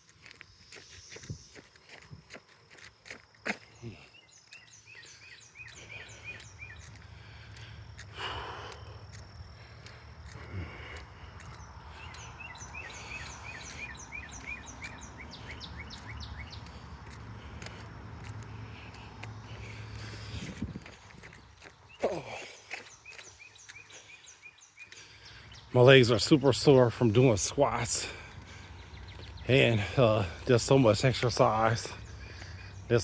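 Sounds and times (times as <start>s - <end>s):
songbirds chirping: 0.0s - 33.0s
footstep clicks: 4.4s - 24.2s.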